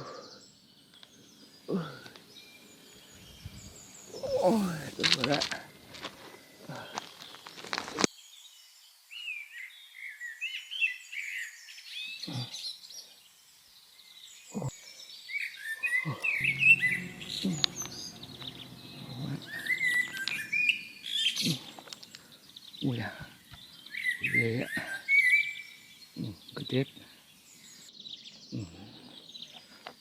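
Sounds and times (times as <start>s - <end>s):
small birds chirping: 0.0s - 30.0s
low steady hum: 16.2s - 21.0s.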